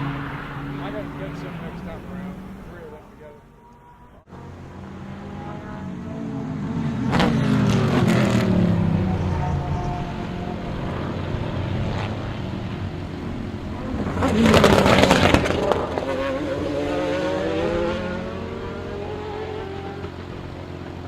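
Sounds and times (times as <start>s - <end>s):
crackling exhaust: 0.0s - 21.0s
race car engines: 0.0s - 21.0s
race car passing close: 0.0s - 21.0s.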